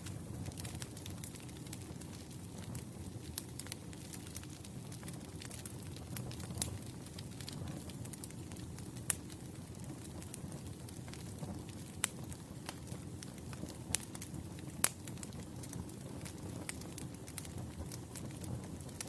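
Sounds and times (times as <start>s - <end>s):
fire low rumble: 0.0s - 19.0s
wood fire crackling: 0.0s - 19.0s.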